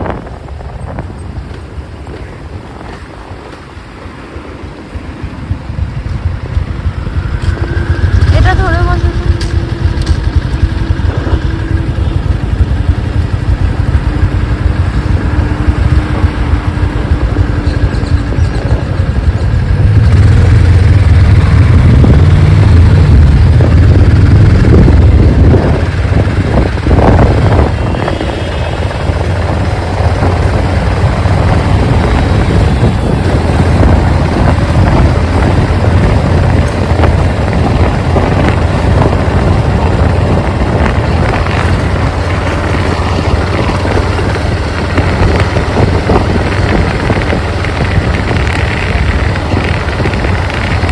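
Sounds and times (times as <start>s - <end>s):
motorcycle engine rumble: 0.0s - 50.9s.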